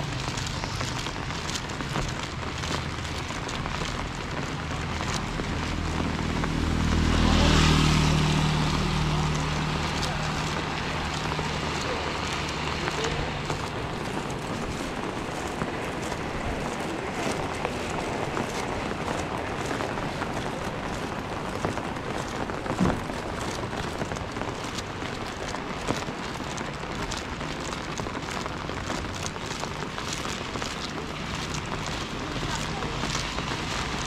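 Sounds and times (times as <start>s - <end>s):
steady rain falling: 0.0s - 34.0s
short loud thump: 22.8s - 23.1s.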